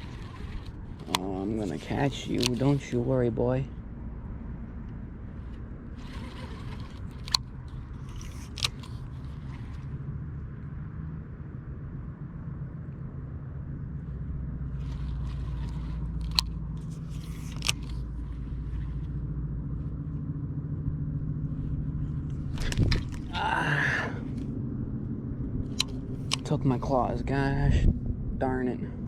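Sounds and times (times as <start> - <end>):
low mechanical hum: 0.0 - 29.0
sharp clicks: 0.2 - 2.8, 6.0 - 9.8, 15.6 - 18.0, 25.7 - 26.6.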